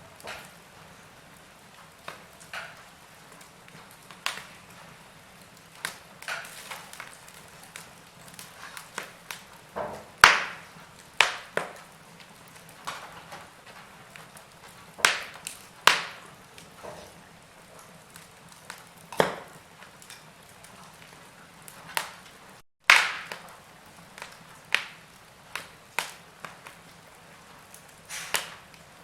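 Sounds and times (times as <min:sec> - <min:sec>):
wood fire crackling: 0:00.0 - 0:29.0
faint hiss: 0:27.3 - 0:28.7.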